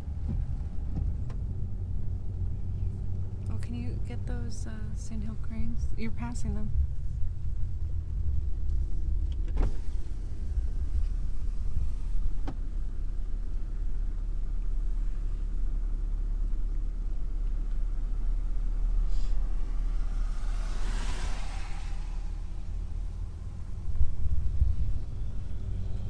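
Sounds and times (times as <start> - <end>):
car road and engine rumble: 0.0 - 26.0
hiss: 19.0 - 23.0.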